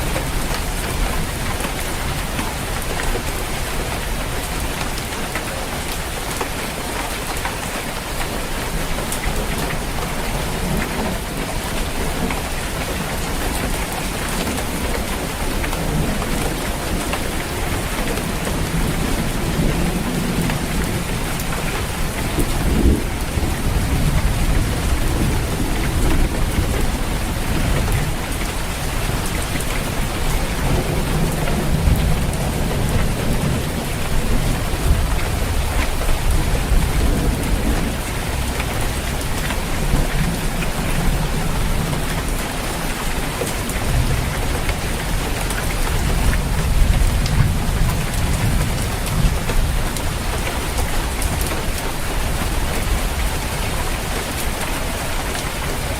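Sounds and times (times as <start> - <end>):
heavy rain drumming on a roof: 0.0 - 55.9
low rolling thunder: 13.0 - 55.9.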